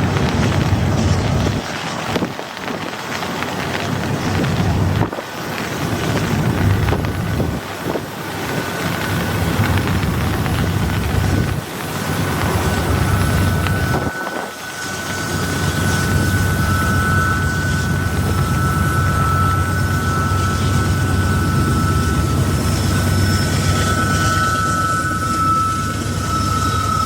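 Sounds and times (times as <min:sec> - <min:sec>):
freight train rumbling past: 0:00.0 - 0:02.1, 0:04.0 - 0:27.0
high-pitched tone: 0:12.0 - 0:27.0.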